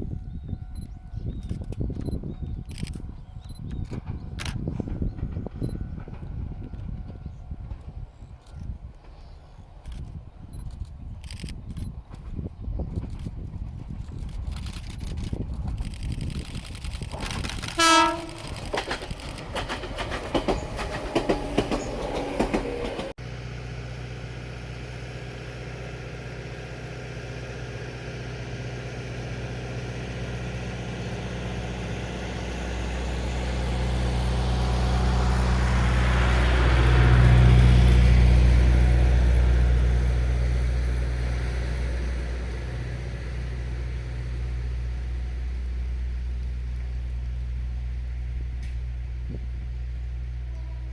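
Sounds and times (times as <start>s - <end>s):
train rumbling past: 0.0s - 50.9s
train wheels clattering over rails: 15.7s - 23.2s.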